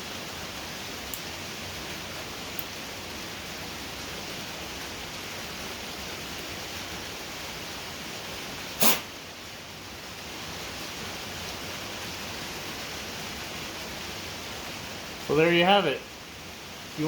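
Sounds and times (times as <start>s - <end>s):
heavy rain hissing: 0.0s - 17.0s
short sharp loud sound: 8.8s - 9.1s.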